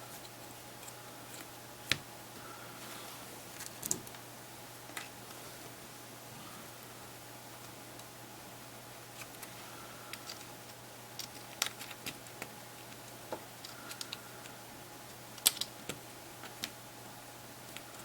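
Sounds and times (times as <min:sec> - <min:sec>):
small clicks and light taps: 0:11.2 - 0:16.8.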